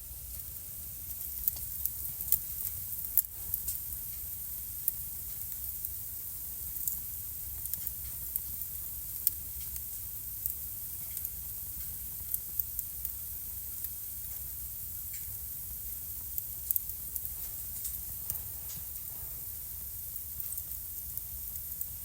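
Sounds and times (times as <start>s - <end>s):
wood fire crackling: 0.0s - 22.0s
sharp pops of burning logs: 0.3s - 13.2s, 19.7s - 22.0s.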